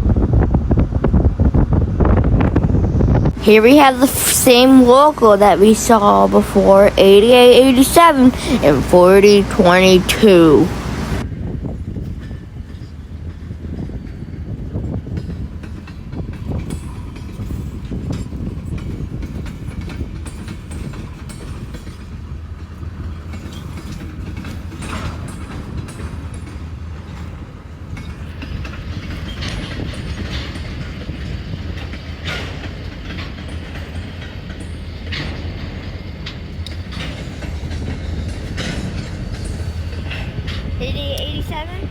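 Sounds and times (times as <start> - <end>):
freight train rumbling past: 0.0 - 41.9
wheel clicks over rail joints: 15.0 - 40.8.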